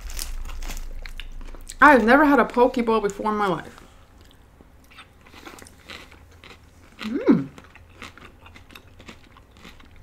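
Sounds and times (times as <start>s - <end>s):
close-up chewing: 4.2s - 10.0s
closed-mouth hum: 6.9s - 7.7s.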